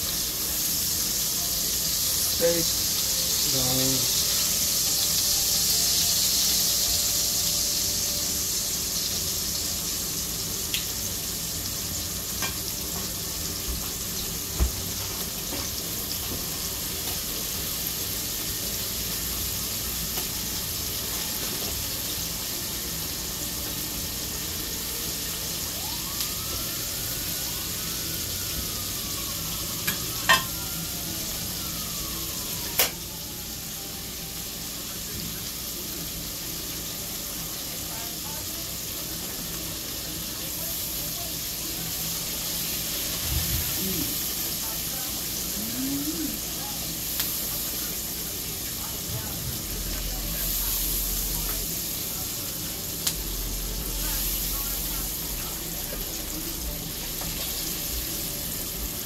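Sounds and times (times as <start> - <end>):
food sizzling in hot oil: 0.0 - 59.0
distant siren wailing: 18.6 - 35.2, 43.0 - 44.6, 45.4 - 59.0.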